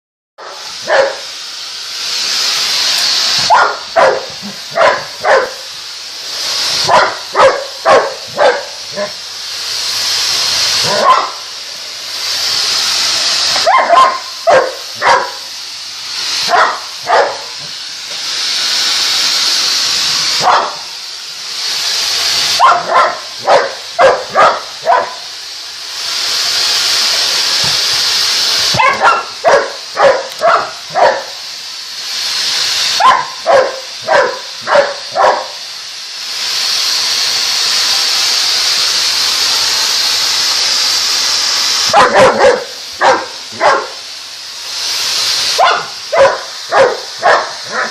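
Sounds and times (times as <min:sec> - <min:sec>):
dog barking: 0:00.4 - 0:01.2, 0:03.5 - 0:05.6, 0:06.8 - 0:09.2, 0:10.8 - 0:11.4, 0:13.6 - 0:15.4, 0:16.5 - 0:17.5, 0:20.4 - 0:20.9, 0:22.6 - 0:25.3, 0:28.7 - 0:31.4, 0:33.0 - 0:35.6, 0:41.9 - 0:44.0, 0:45.6 - 0:47.9
vacuum cleaner running: 0:00.4 - 0:47.9.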